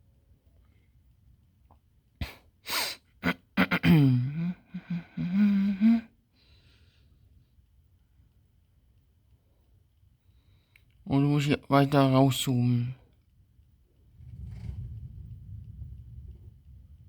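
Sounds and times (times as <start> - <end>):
man sneezing: 2.2 - 4.6.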